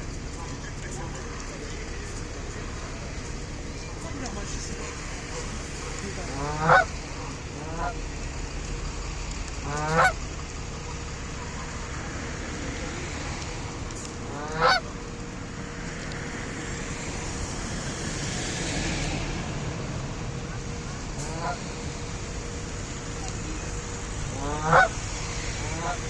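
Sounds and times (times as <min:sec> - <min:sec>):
goose honking: 0:03.5 - 0:08.1, 0:09.6 - 0:10.2, 0:14.2 - 0:15.0, 0:20.2 - 0:26.0.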